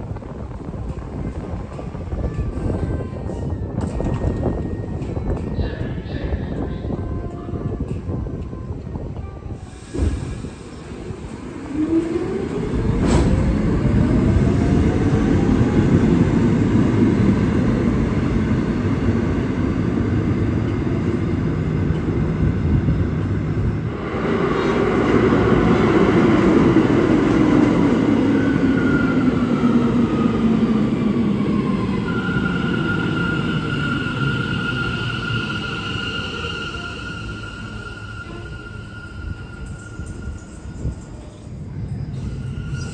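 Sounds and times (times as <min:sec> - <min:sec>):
subway train rumbling: 0:00.0 - 0:42.9
train brakes squealing: 0:31.6 - 0:42.9.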